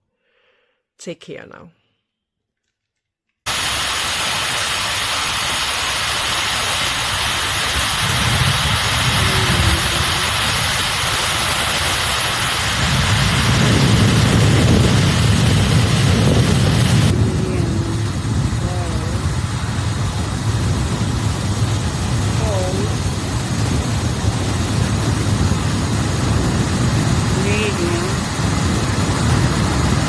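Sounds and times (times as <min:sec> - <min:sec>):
hair dryer blowing: 0:03.5 - 0:19.2.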